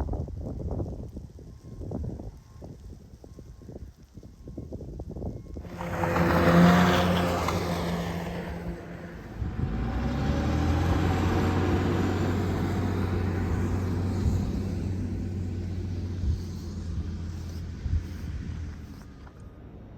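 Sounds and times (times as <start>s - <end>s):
low engine hum: 5.4s - 19.9s
vehicle rushing past: 5.6s - 19.9s.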